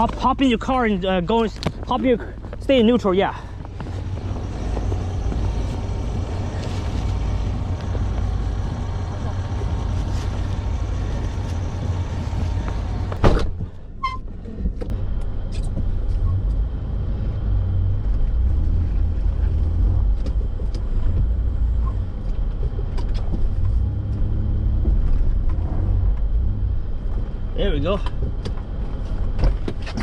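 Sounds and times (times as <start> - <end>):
truck engine running: 0.0 - 13.9
sharp thump: 13.1 - 13.6.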